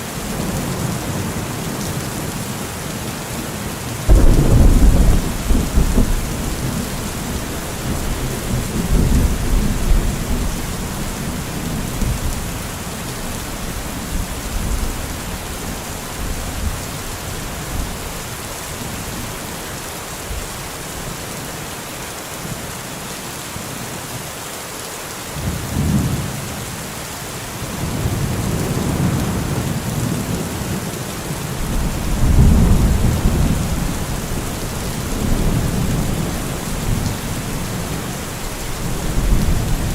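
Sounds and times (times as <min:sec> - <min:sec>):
steady rain falling: 0:00.0 - 0:39.9
rolling thunder: 0:04.1 - 0:12.7, 0:31.6 - 0:39.9.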